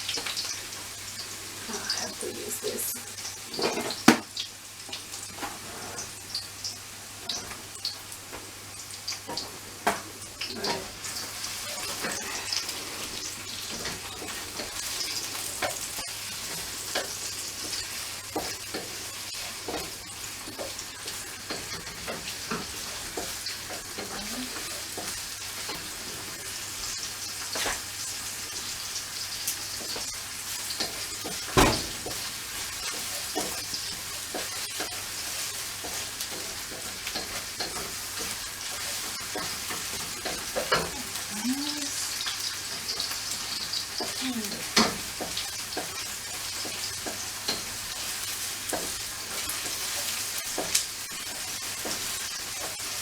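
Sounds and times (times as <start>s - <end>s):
onion and garlic sizzling in oil: 0.0s - 53.0s
knock on a pan: 3.6s - 4.3s, 31.6s - 32.2s.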